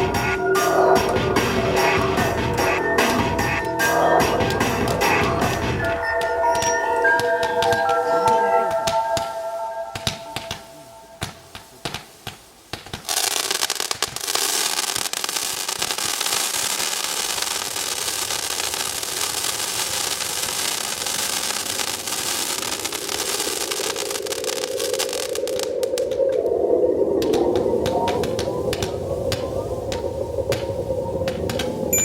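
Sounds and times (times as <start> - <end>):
rising tone: 0.0 - 11.6
fireworks crackling: 0.0 - 32.0.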